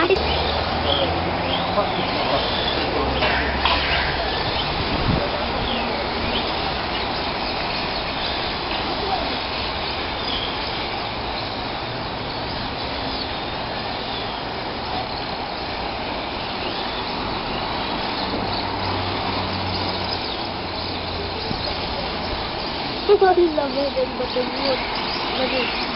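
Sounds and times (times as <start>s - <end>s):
steady rushing background noise: 0.0s - 25.9s.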